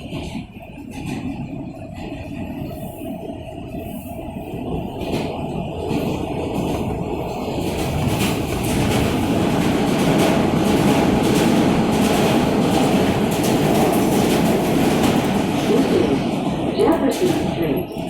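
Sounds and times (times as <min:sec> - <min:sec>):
train wheels rumbling on rail: 0:00.0 - 0:18.0
rail-joint clicks: 0:05.0 - 0:18.0.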